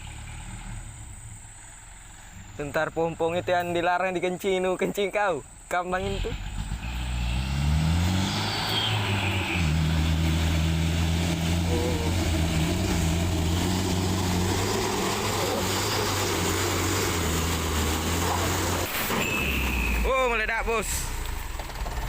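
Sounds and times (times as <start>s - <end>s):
truck engine revving: 5.9s - 22.0s.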